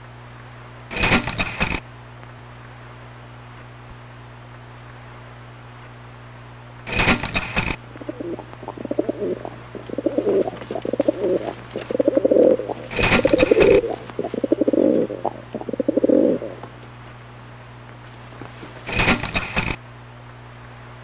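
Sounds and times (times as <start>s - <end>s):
sharp noisy bursts: 6.9s - 16.2s, 18.9s - 19.8s
pigeon cooing: 6.9s - 16.8s.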